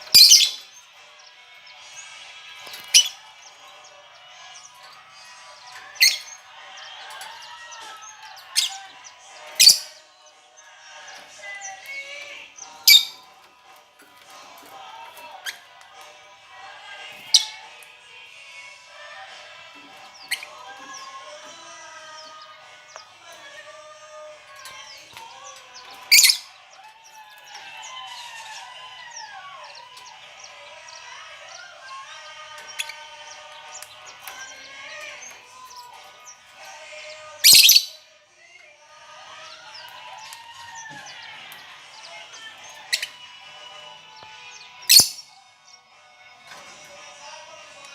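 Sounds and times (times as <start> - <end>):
birds chattering and warbling: 0.0 - 47.9
birds shrieking: 0.0 - 47.9
lovebirds chirping: 0.0 - 47.9
shrill bird screech: 37.4 - 38.0.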